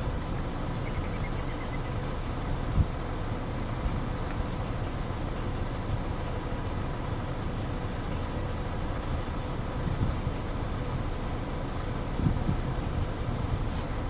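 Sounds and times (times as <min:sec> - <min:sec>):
wind buffeting microphone: 0:09.8 - 0:10.4, 0:12.1 - 0:13.8.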